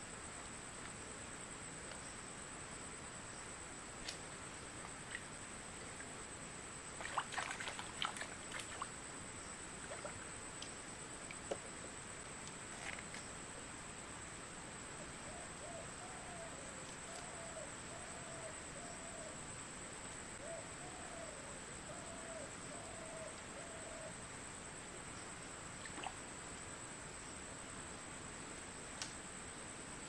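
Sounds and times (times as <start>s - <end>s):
owl hooting: 20.4s - 24.1s.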